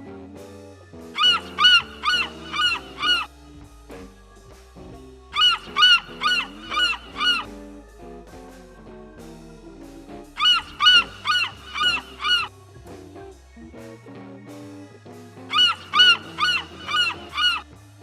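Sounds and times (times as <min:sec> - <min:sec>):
background music: 0:00.0 - 0:18.0
animal calling: 0:01.0 - 0:04.2, 0:05.2 - 0:08.2, 0:10.2 - 0:12.5, 0:15.5 - 0:17.8.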